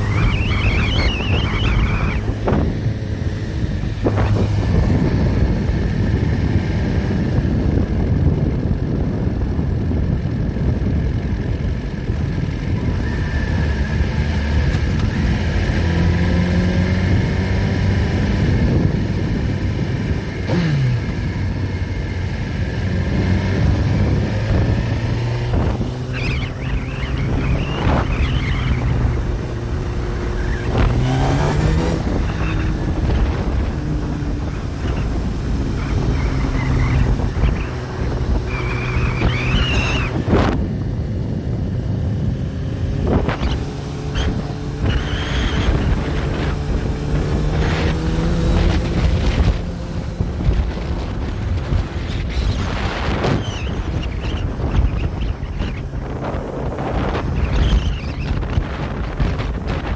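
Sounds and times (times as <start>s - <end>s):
high wavering squeals: 0.0s - 2.6s
diesel engine running: 0.0s - 17.2s.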